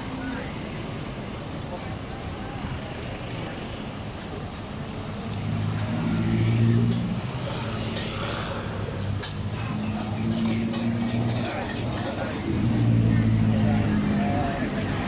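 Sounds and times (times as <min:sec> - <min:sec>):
street noise: 0:00.0 - 0:15.0
vehicle engine passing by: 0:05.4 - 0:15.0.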